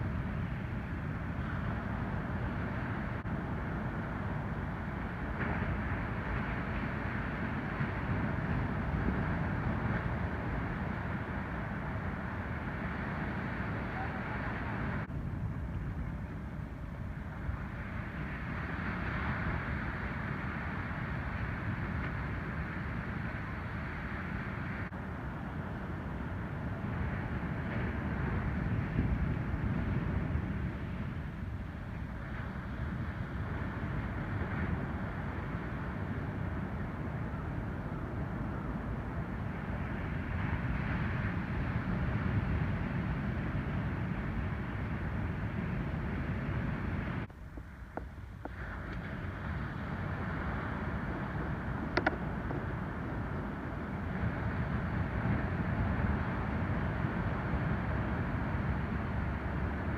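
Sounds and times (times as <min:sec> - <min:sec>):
waves breaking on beach: 0:00.0 - 0:15.1, 0:17.4 - 0:47.3, 0:48.4 - 0:59.9
wind on microphone: 0:00.0 - 0:59.9.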